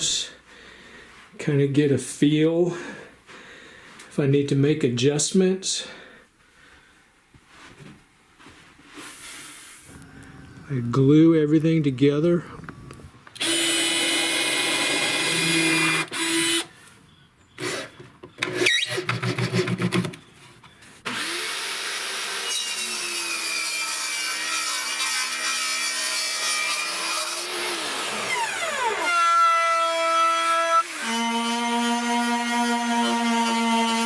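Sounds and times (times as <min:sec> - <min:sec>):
power tool running: 0:13.4 - 0:16.7, 0:21.1 - 0:34.0.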